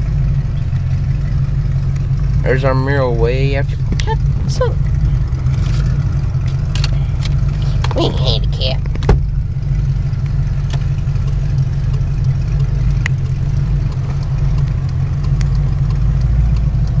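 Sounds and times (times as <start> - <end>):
car engine and road noise: 0.0 - 17.0
faint ticks: 10.5 - 17.0.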